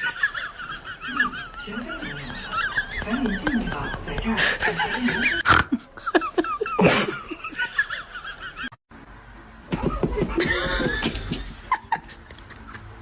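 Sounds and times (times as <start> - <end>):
person laughing: 0.0 - 8.7, 9.7 - 13.0.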